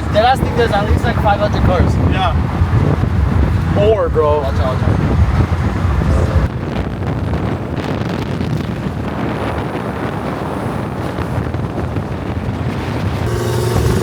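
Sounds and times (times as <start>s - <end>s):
car and traffic noise: 0.0s - 7.9s
wind rumbling on microphone: 0.0s - 14.0s.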